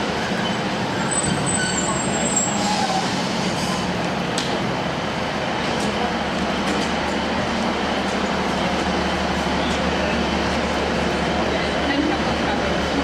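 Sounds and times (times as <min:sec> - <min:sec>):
diesel train rumbling: 0:00.0 - 0:13.0.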